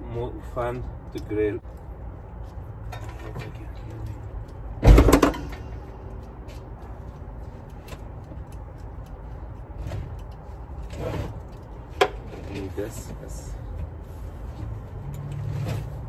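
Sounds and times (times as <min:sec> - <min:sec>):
metal hardware clicks and rattles: 0:02.8 - 0:06.6.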